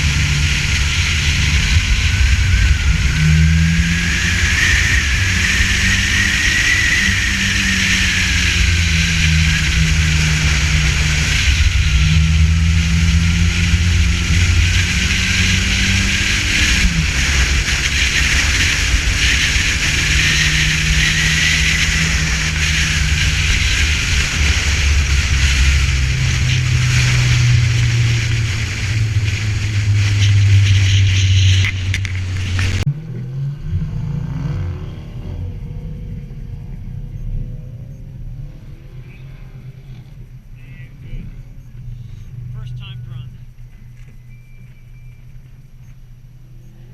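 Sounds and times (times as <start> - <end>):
car engine running hard: 0.0 - 46.9.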